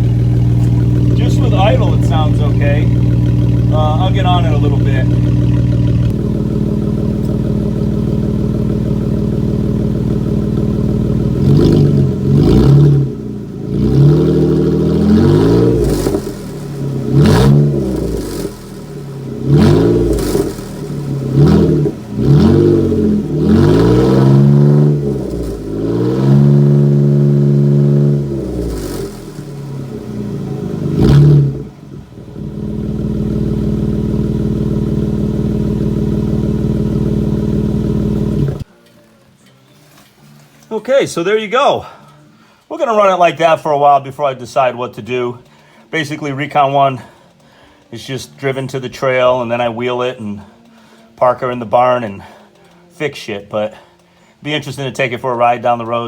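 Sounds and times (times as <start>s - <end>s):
unmuffled engine idling and revving: 0.0s - 38.7s.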